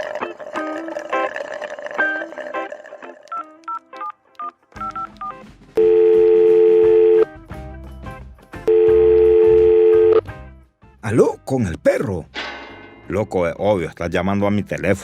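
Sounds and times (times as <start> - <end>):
background music: 0.0 - 15.0
phone keypad beeps: 4.4 - 7.2
phone ringback tones: 4.4 - 7.3, 8.7 - 10.2.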